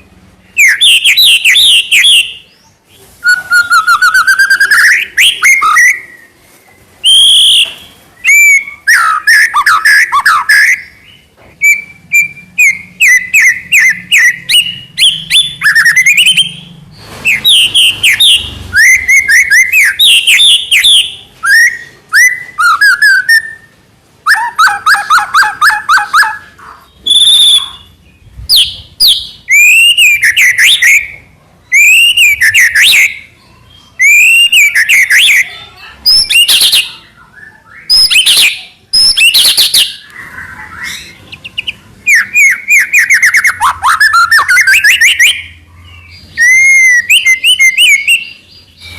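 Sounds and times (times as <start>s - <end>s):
songbird singing whistles and trills: 0.0s - 48.9s.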